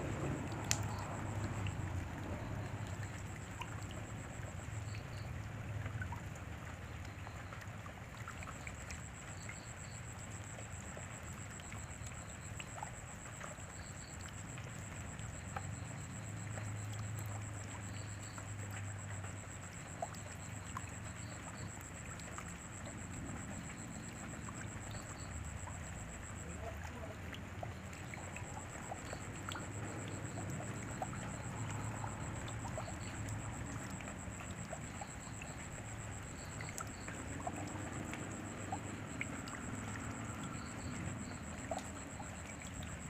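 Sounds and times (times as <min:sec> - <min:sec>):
rain falling: 0:00.0 - 0:43.0
drops ticking: 0:00.4 - 0:03.9.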